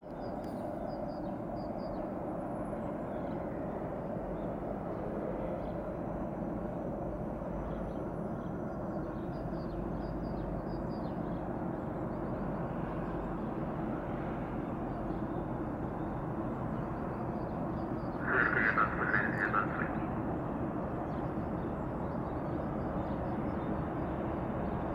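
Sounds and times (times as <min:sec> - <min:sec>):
diesel locomotive engine drone: 0:00.0 - 0:24.9.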